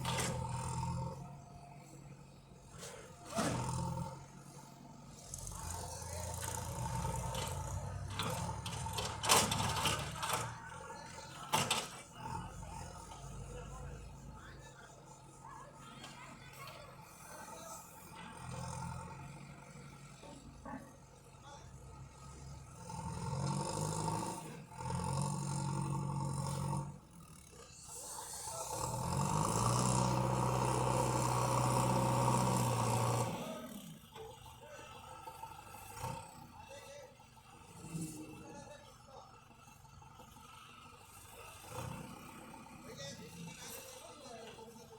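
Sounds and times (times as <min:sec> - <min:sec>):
tractor engine rumbling: 0:00.0 - 0:44.9
metallic clanks and rattles: 0:07.2 - 0:10.7.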